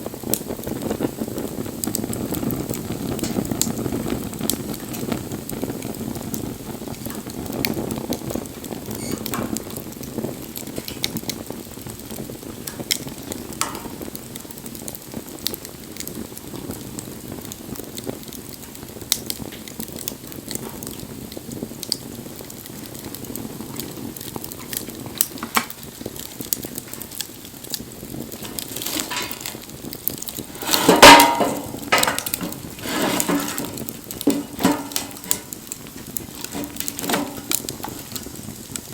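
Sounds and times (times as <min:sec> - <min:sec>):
wood fire crackling and popping: 0:00.0 - 0:38.9
clatter of knocks: 0:30.5 - 0:35.6, 0:36.4 - 0:38.2.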